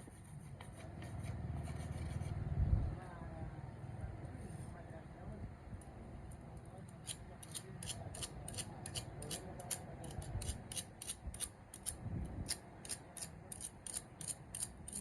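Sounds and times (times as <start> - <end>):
hand tool scraping metal: 7.1 - 15.0.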